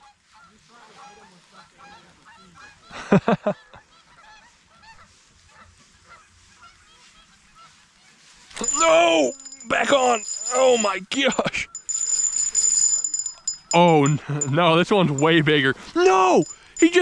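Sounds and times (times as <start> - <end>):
geese honking: 0.1 - 2.9.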